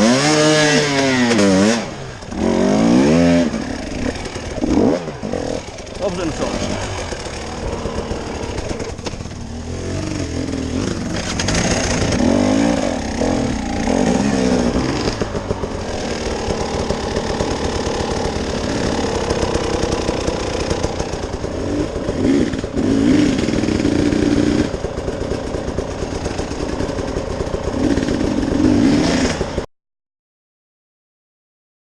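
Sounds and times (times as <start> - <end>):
off-road vehicle engine revving: 0.0 - 29.7
clatter over rough ground: 0.4 - 29.7.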